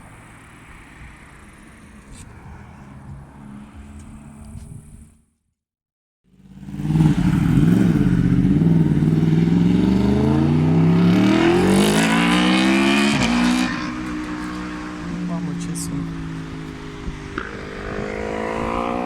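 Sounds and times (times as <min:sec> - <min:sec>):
motorcycle engine accelerating: 0:06.3 - 0:19.0.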